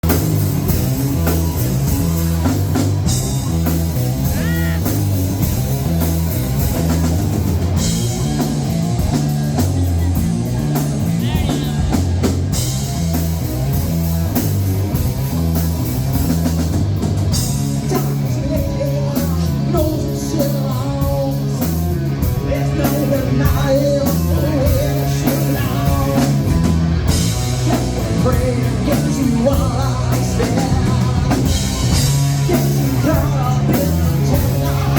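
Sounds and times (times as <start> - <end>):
rock band playing live: 0.0 - 34.9
person singing: 4.2 - 5.0, 11.0 - 12.3, 17.8 - 26.6, 27.6 - 34.9.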